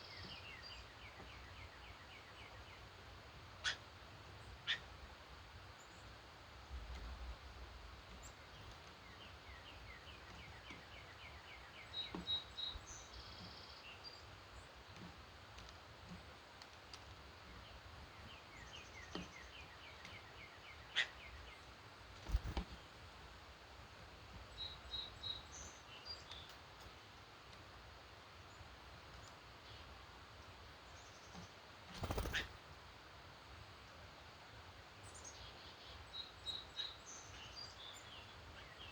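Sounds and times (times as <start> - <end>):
steady background hiss: 0.0 - 38.9
birds chirping: 32.0 - 32.6.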